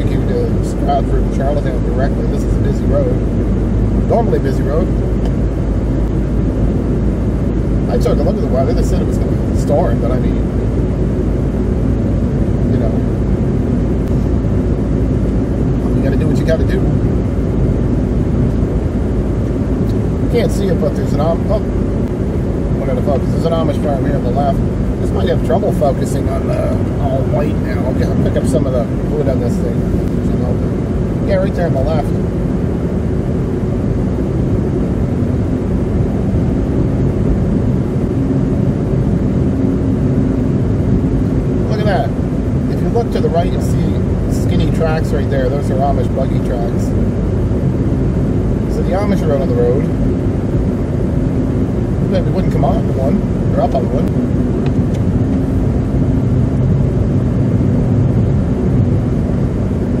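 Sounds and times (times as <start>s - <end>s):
engine hum: 0.0s - 60.0s.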